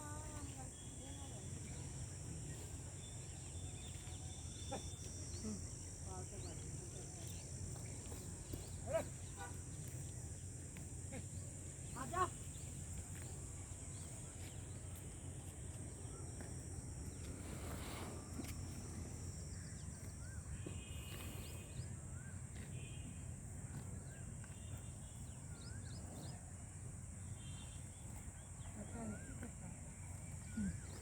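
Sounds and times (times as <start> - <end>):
high-pitched hiss: 16.0 - 22.0.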